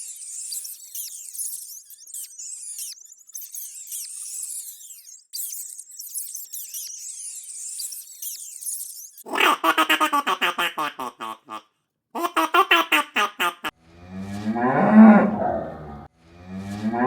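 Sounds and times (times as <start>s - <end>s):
small animals chirping and squeaking: 0.0s - 11.6s, 12.2s - 13.7s.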